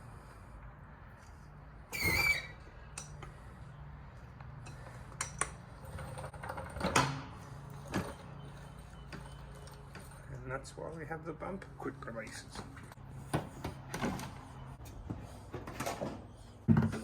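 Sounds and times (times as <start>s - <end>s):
short squeak: 1.9s - 2.8s.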